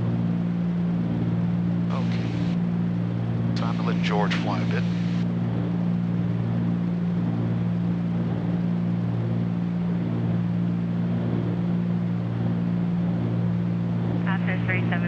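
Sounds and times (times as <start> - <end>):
airplane propeller engines droning: 0.0 - 15.0.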